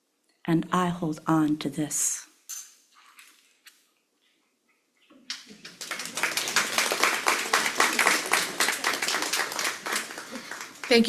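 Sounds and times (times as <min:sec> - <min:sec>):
congregation applauding: 0:05.3 - 0:11.0.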